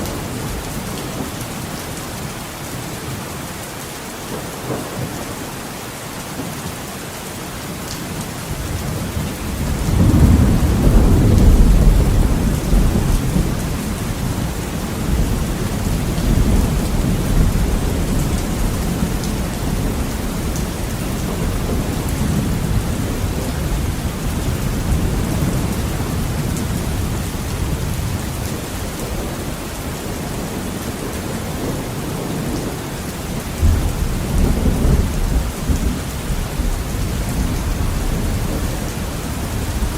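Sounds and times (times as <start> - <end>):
heavy rain on a window: 0.0 - 39.9
rolling thunder: 8.7 - 29.5, 30.1 - 39.9.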